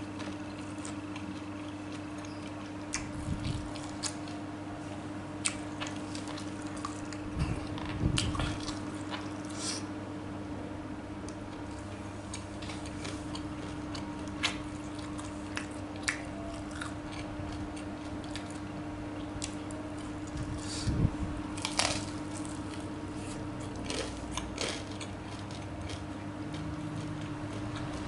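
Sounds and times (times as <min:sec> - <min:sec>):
steady low hum: 0:00.0 - 0:28.0
wet chewing: 0:11.3 - 0:20.4.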